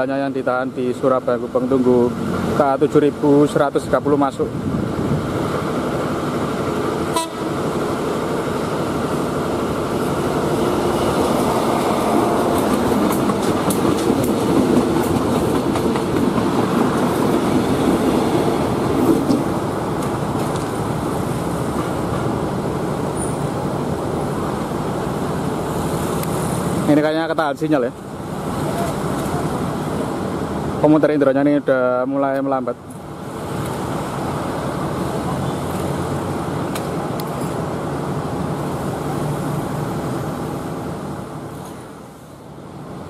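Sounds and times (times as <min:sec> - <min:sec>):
train wheels rumbling on rails: 0:00.0 - 0:43.0
rail joint clicks: 0:08.3 - 0:22.4, 0:36.6 - 0:37.7.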